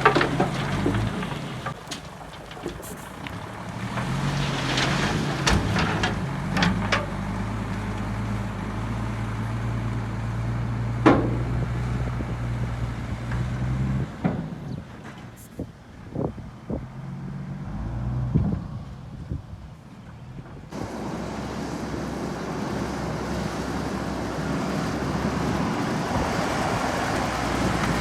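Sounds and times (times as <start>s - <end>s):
heavy diesel engine running: 20.4s - 28.0s.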